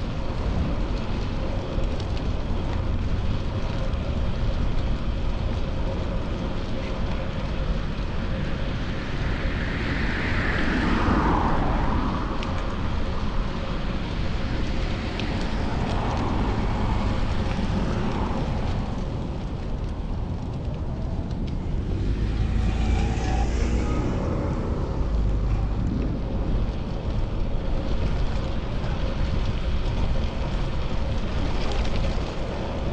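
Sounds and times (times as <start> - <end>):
wind rumbling on microphone: 0.0 - 32.9
vehicle passing: 21.0 - 27.0
engine note rising: 21.5 - 26.2.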